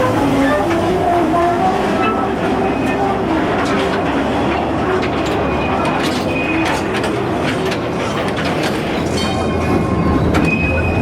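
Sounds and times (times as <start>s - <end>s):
ride train wheels rattling: 0.0s - 11.0s
high-pitched wheel squeals: 9.1s - 11.0s.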